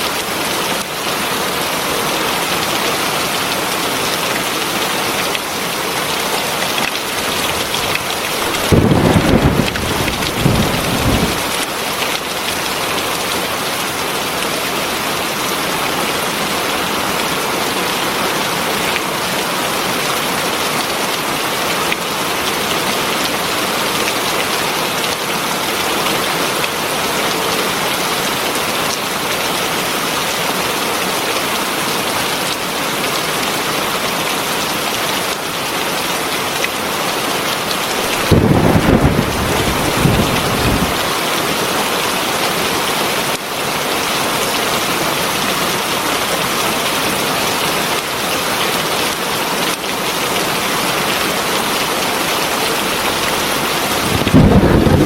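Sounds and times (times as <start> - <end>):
heavy rain falling: 0.0 - 55.0
low rumble of thunder: 8.4 - 11.6, 38.1 - 41.1, 53.0 - 55.0.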